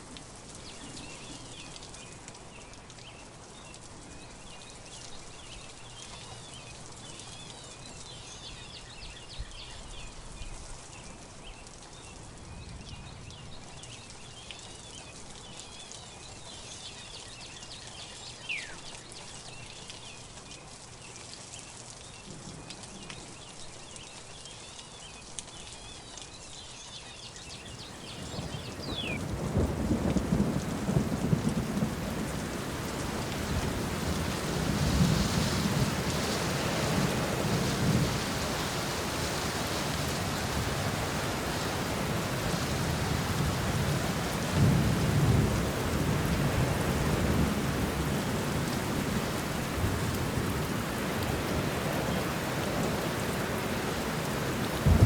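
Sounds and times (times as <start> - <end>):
birds chirping: 27.5 - 34.5.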